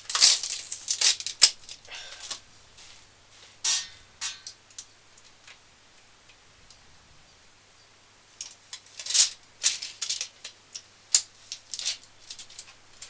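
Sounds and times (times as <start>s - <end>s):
plastic packaging crinkling: 0.0s - 3.1s.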